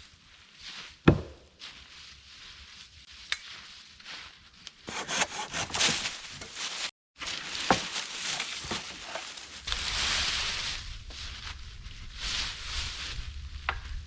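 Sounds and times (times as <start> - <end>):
sharp rap on wood: 4.9 - 5.9
hand saw rasping through wood: 4.9 - 6.5.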